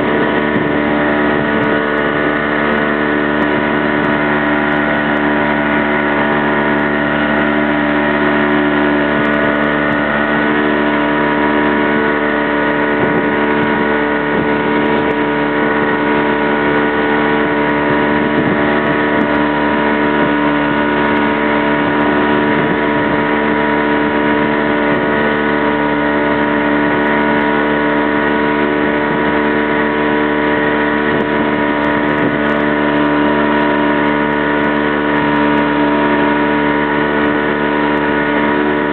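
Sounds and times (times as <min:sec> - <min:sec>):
motorboat engine droning: 0:00.0 - 0:38.9.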